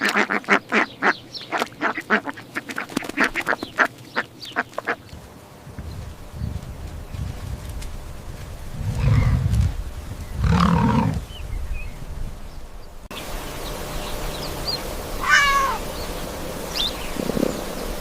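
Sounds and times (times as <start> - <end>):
cat meowing: 15.2 - 15.8
low short animal calls: 15.2 - 15.8.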